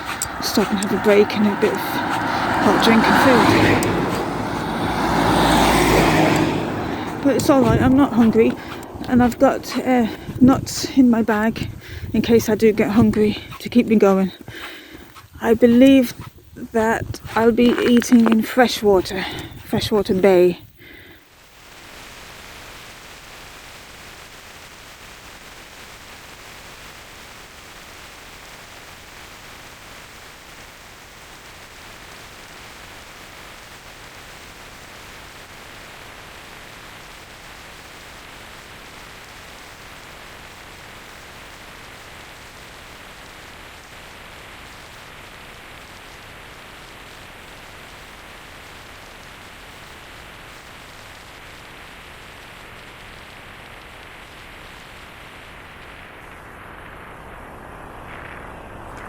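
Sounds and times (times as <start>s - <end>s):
wind and road noise: 0.0s - 23.5s, 45.6s - 59.0s.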